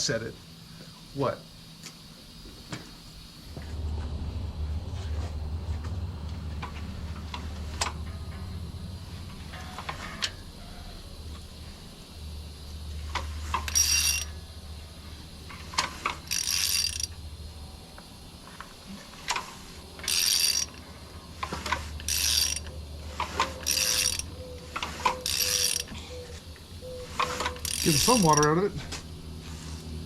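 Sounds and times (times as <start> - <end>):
low steady hum: 0.0 - 30.0
ratchet clicking: 13.0 - 14.4, 15.4 - 17.2, 19.2 - 26.0, 27.0 - 28.7.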